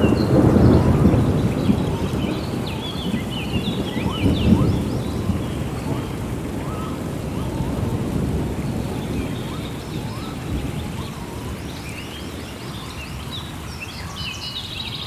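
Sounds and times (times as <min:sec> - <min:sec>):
birds chirping and whistling: 0:00.0 - 0:07.8
rolling thunder rumble: 0:00.0 - 0:12.6
steady rain: 0:00.0 - 0:15.0.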